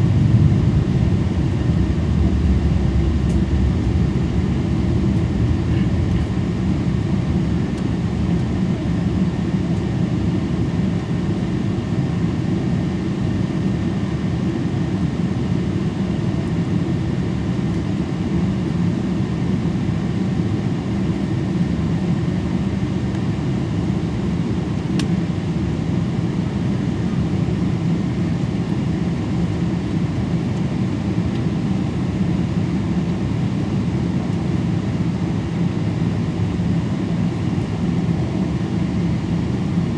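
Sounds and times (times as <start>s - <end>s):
airliner cabin rumble: 0.0s - 13.7s.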